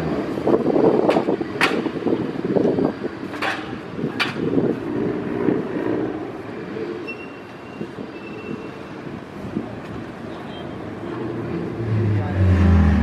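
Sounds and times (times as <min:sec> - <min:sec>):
car engines running: 0:08.9 - 0:13.0.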